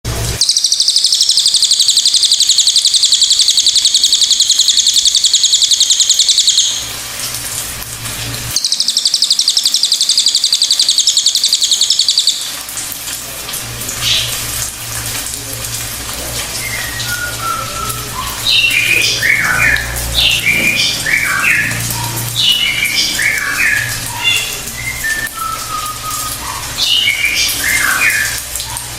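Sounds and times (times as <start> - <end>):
bird singing trills and whistles: 0.4 - 6.9, 8.6 - 12.6, 16.5 - 28.9.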